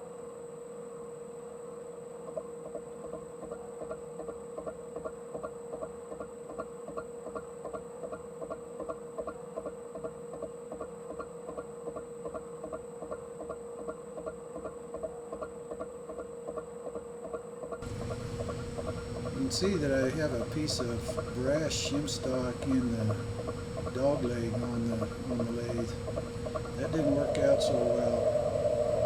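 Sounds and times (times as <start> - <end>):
metal lathe humming: 17.8 - 29.0.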